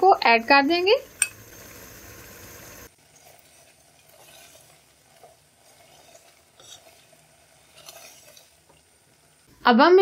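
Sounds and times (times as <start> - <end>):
chicken sizzling in a pot: 0.0 - 10.0
spatula scraping and stirring: 2.8 - 9.5.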